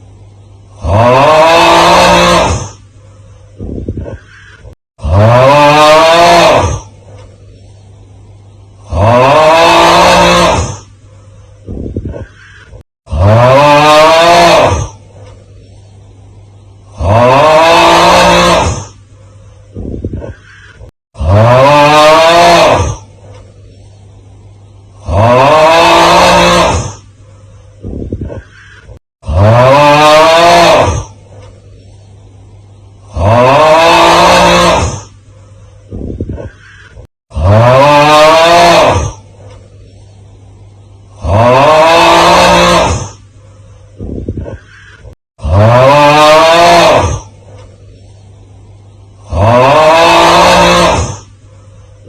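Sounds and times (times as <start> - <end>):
low hum: 0.0 - 1.2, 6.5 - 9.4, 14.6 - 17.4, 23.0 - 25.4, 39.2 - 41.6
strained groaning yell: 0.8 - 2.8, 4.1 - 6.9, 8.8 - 10.9, 12.1 - 15.0, 16.9 - 18.9, 20.2 - 23.1, 25.0 - 27.0, 28.3 - 31.2, 33.1 - 35.1, 36.4 - 39.2, 41.2 - 43.2, 44.4 - 47.3, 49.2 - 51.3.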